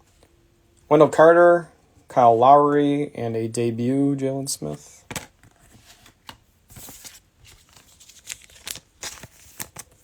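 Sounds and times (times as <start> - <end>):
trading cards shuffling: 4.7 - 10.0
cellophane wrapper crinkling: 6.8 - 10.0.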